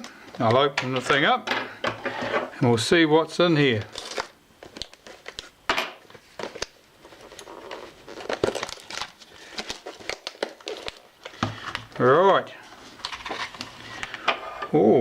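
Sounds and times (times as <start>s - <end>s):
packaging crinkling and rustling: 3.6s - 14.2s.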